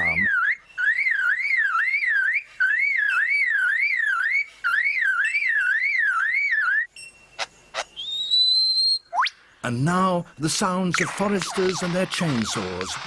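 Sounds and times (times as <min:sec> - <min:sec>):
bird mimicking car alarm: 0:00.0 - 0:09.3.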